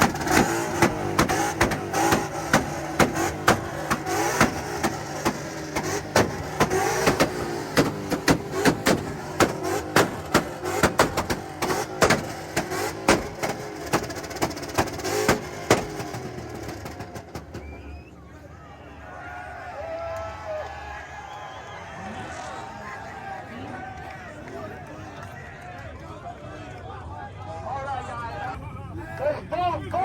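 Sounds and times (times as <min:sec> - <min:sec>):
exhaust popping and banging: 0:00.0 - 0:17.9
car engines revving: 0:00.0 - 0:18.8.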